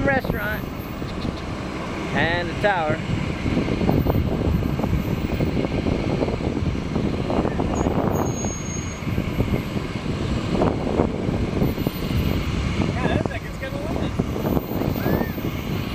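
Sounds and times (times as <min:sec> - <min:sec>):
jet engines rumbling: 0:00.0 - 0:15.9.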